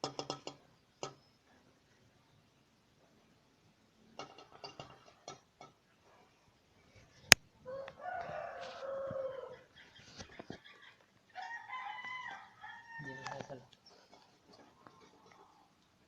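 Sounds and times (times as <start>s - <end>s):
rooster crowing: 7.6s - 9.7s, 11.3s - 13.5s.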